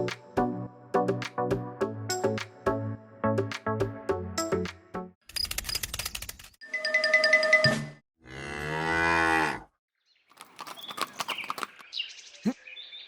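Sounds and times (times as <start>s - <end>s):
cow mooing: 8.2s - 9.7s.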